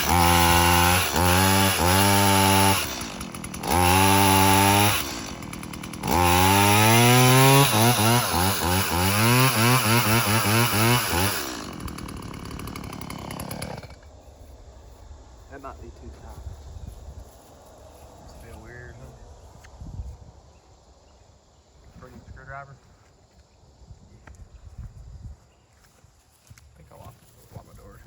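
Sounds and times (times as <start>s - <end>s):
chainsaw revving: 0.0s - 14.1s.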